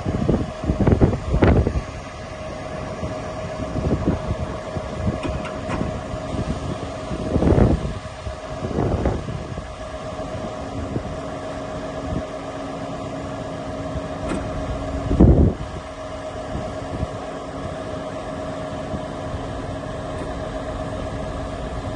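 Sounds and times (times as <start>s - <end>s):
diesel truck idling: 0.0s - 21.9s.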